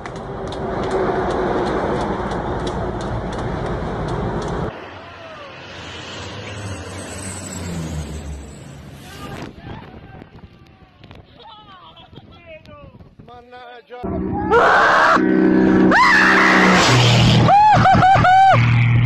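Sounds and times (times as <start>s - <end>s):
low-flying propeller plane: 0.0s - 9.0s.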